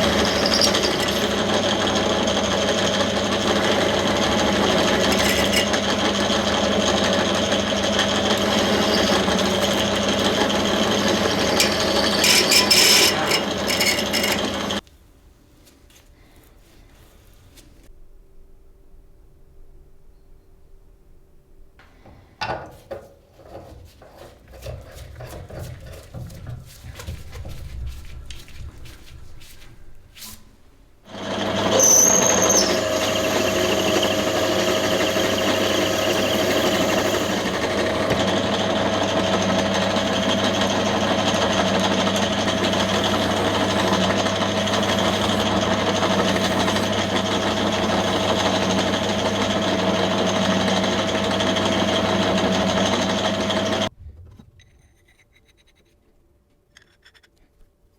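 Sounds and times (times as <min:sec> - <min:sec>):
power tool motor running: 0:00.0 - 0:14.8, 0:31.1 - 0:53.9.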